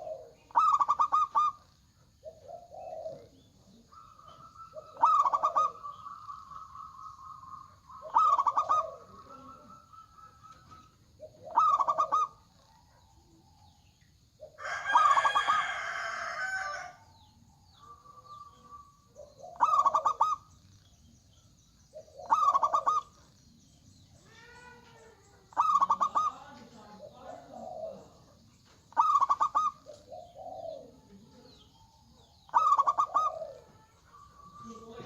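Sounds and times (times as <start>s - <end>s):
doves cooing: 0.0s - 35.0s.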